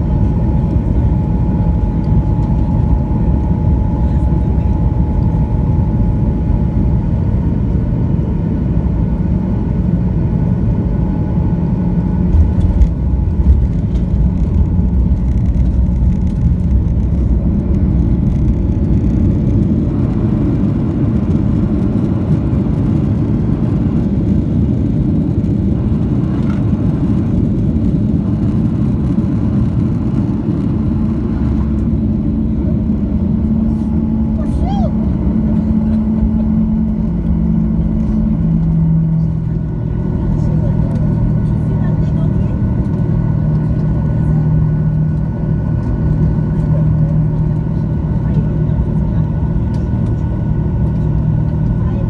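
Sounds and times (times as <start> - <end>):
thin steady whine: 0.0 - 7.7
jet engines rumbling: 0.0 - 52.0.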